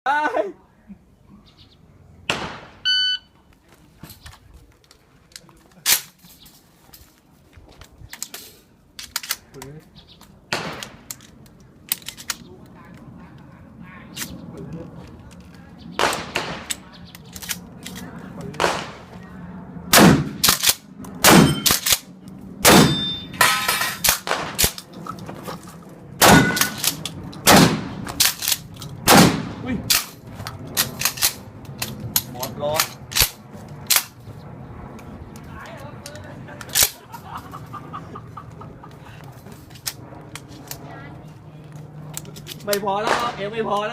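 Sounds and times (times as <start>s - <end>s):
short electronic beep: 2.9s - 3.3s
sharp bangs with ringing tail: 21.2s - 21.8s, 22.6s - 24.6s, 26.2s - 26.8s.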